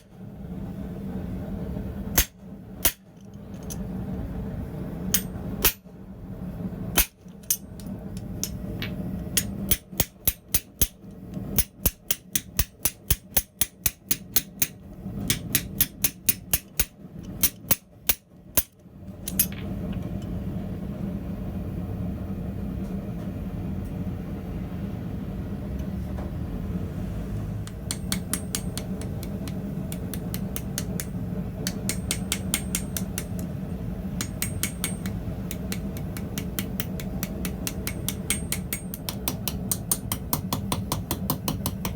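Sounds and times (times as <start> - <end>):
hammer striking steel on anvil: 2.2 - 3.1, 5.1 - 5.9, 7.0 - 7.6, 9.3 - 11.0, 11.6 - 19.6, 27.6 - 33.5, 34.2 - 41.9.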